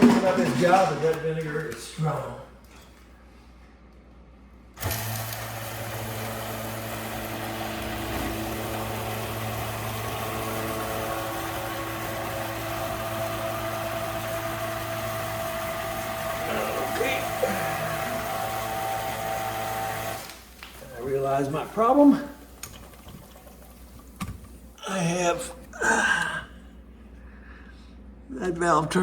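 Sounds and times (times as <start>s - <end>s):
electric pump humming: 0.0s - 1.4s, 4.8s - 26.0s.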